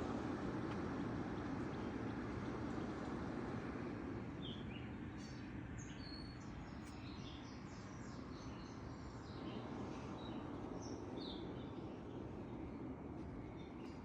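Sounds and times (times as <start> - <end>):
small birds chirping: 4.4 - 14.0.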